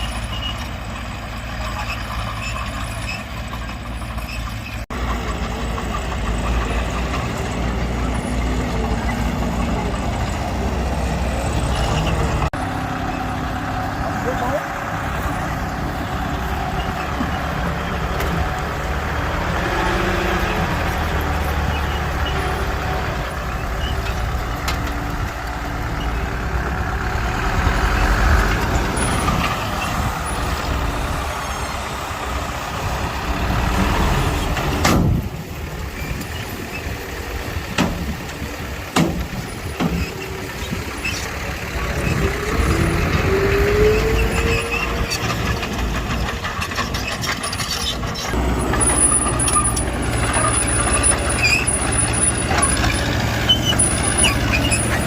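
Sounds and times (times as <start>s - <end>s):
heavy machinery engine rumble: 0.0s - 55.0s.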